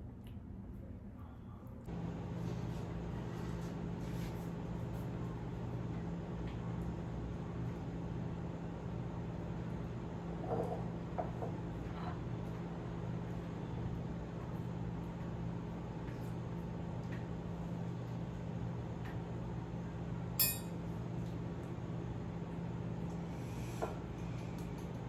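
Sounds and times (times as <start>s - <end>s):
steady low hum: 0.0s - 25.0s
kitchenware clinking: 20.4s - 20.8s.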